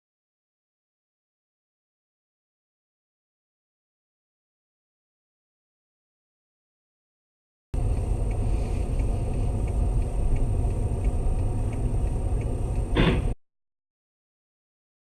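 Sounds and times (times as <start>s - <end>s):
car road and engine rumble: 7.8s - 13.4s
faint regular ticking: 7.8s - 13.4s
thin steady whine: 7.8s - 13.4s
short loud knock: 13.0s - 13.4s.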